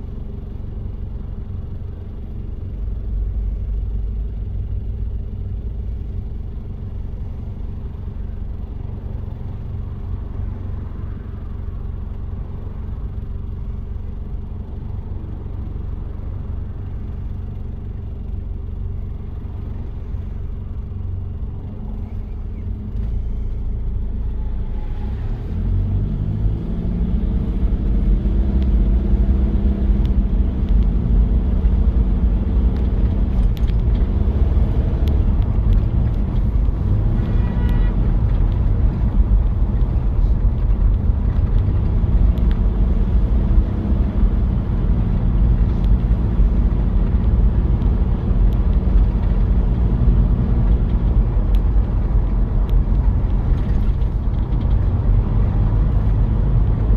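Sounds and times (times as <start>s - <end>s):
diesel engine rumbling: 0.0s - 56.9s.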